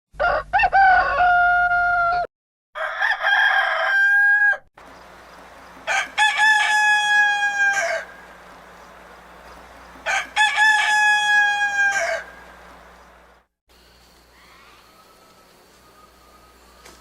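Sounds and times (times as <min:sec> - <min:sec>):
rooster crowing: 0:00.2 - 0:13.2
background hum: 0:04.8 - 0:17.0.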